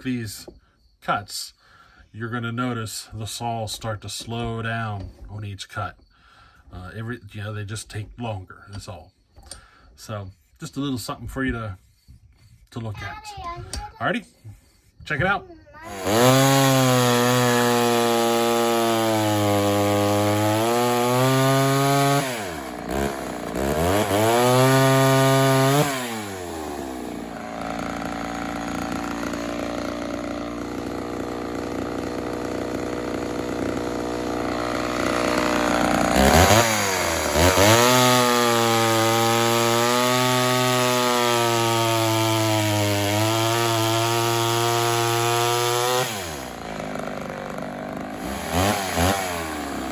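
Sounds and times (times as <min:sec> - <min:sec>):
chainsaw cutting wood: 0:15.8 - 0:49.9.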